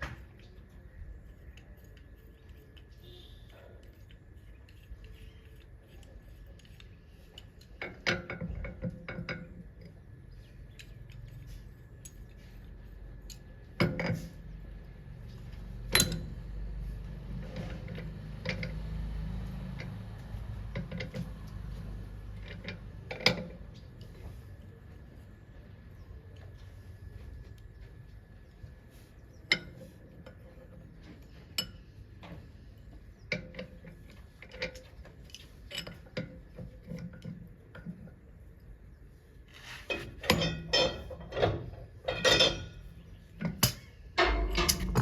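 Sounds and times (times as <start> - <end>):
sharp knocks: 44.3 - 45.0.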